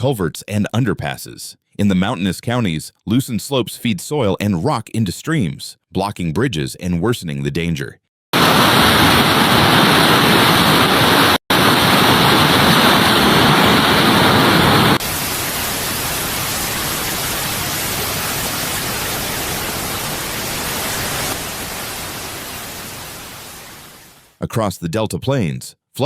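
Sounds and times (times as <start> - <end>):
floodwater rushing: 8.4 - 24.2.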